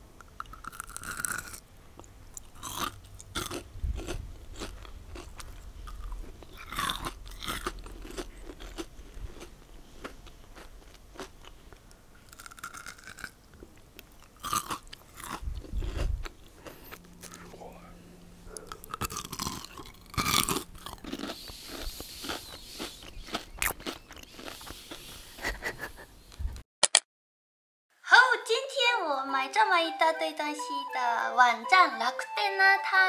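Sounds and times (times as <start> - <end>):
crunching and chewing candy: 0.2 - 17.5, 18.5 - 25.8.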